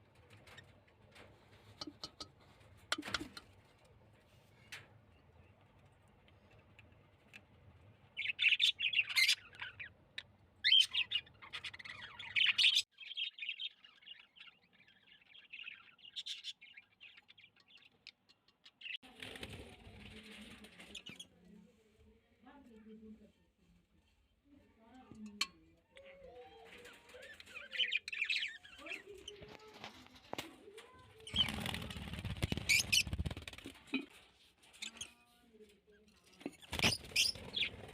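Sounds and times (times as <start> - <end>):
wing fluttering and rustling: 0.0 - 7.9, 19.0 - 21.5, 26.5 - 37.9
pet birds chirping and squawking: 8.1 - 19.0, 26.0 - 33.5, 34.6 - 35.3, 36.0 - 37.9.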